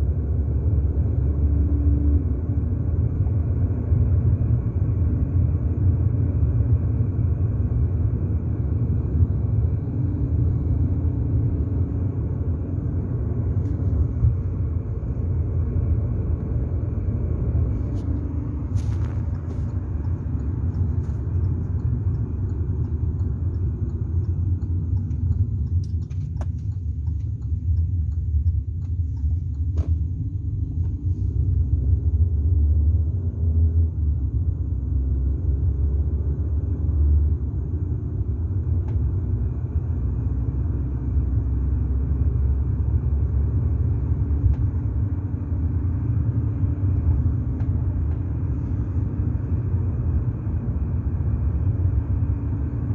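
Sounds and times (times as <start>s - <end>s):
vehicle engine rumble: 0.0s - 52.9s
faint clicks and ticks: 19.3s - 31.0s.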